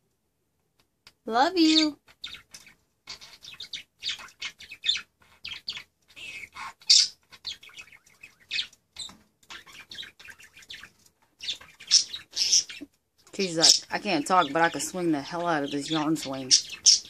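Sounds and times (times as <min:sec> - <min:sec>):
budgerigar chirping: 0:01.6 - 0:12.9, 0:13.5 - 0:17.0.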